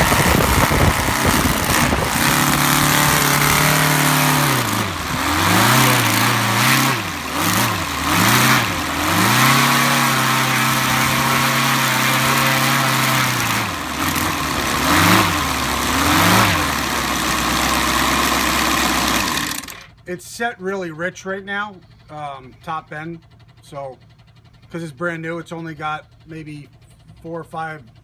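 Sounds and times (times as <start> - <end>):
model radial engine revving: 0.0 - 20.0.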